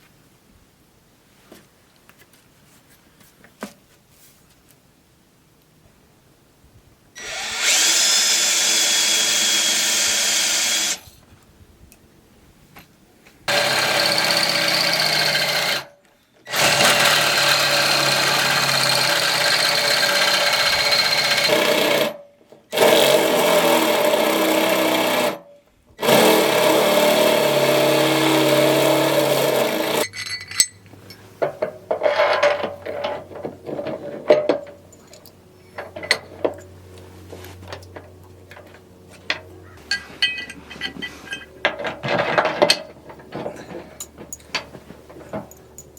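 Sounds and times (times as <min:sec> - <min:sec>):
power drill running: 0:07.2 - 0:11.0, 0:13.5 - 0:15.9, 0:16.5 - 0:25.4, 0:26.0 - 0:30.0.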